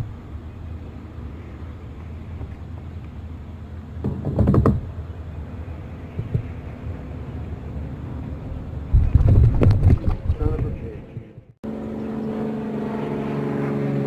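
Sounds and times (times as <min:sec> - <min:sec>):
knocks and clatter: 0:04.0 - 0:04.9, 0:06.1 - 0:06.6, 0:08.9 - 0:11.5
low rumble on microphone: 0:05.7 - 0:11.6.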